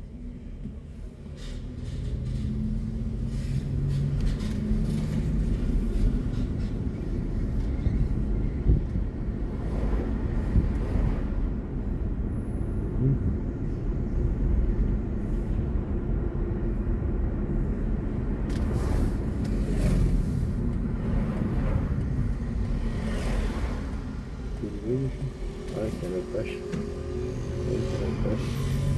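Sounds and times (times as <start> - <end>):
car road and tyre noise: 0.0 - 28.9.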